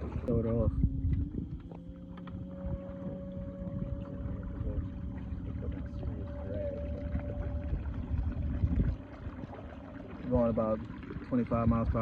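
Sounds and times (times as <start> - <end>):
water rumble: 0.0 - 12.0
wind on microphone: 0.0 - 12.0
electric motor whine: 0.7 - 8.3.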